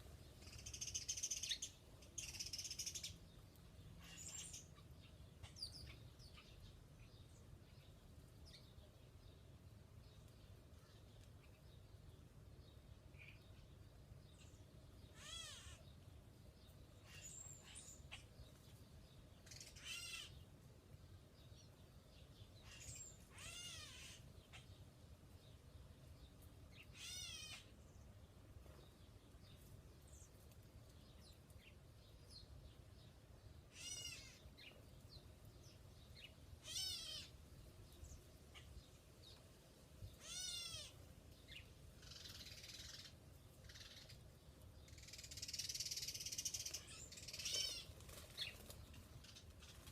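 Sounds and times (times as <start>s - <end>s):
faint bird chirps: 0.0s - 9.3s, 40.0s - 49.9s.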